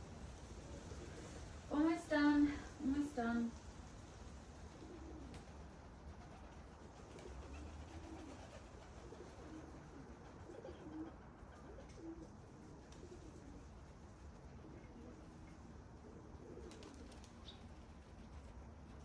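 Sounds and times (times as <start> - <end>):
pigeons cooing: 4.6 - 17.9.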